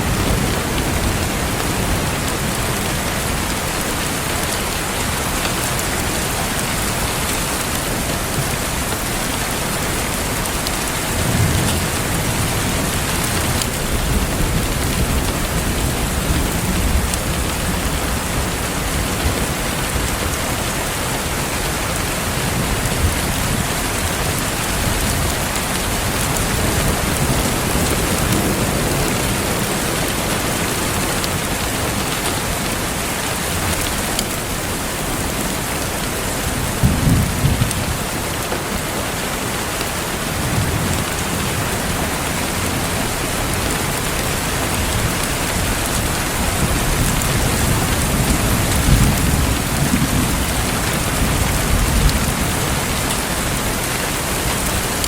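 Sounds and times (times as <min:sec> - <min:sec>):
steady rain falling: 0:00.0 - 0:55.0
thunder rumbling: 0:40.2 - 0:55.0.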